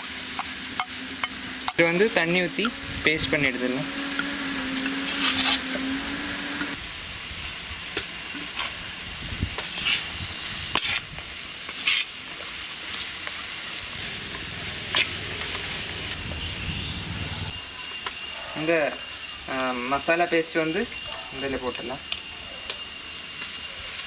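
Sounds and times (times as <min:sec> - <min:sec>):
food sizzling in hot oil: 0:00.0 - 0:17.5
utensil clinking: 0:14.0 - 0:17.5.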